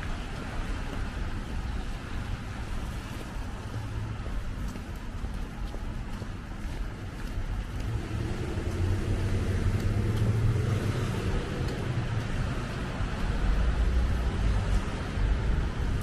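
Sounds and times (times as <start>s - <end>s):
car driving past: 7.8s - 15.3s.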